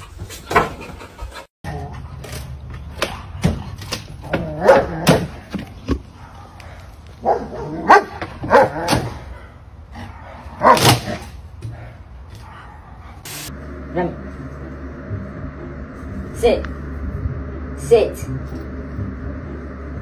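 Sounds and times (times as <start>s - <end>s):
dog barking: 4.5s - 5.4s, 6.2s - 9.2s, 10.0s - 11.2s.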